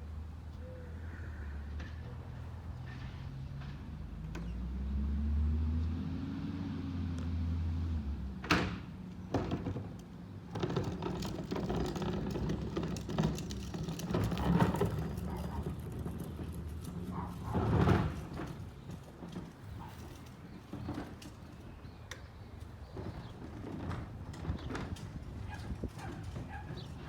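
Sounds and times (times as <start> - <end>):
rattling and clattering: 9.3 - 21.6, 22.8 - 27.0.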